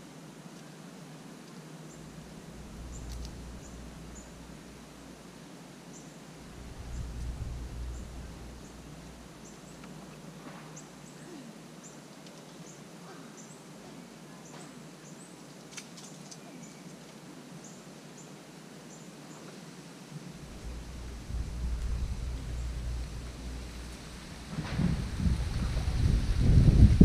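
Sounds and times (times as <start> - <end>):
wind on microphone: 1.9 - 5.1, 6.4 - 9.5, 20.3 - 27.0
faint clicks: 2.6 - 4.5.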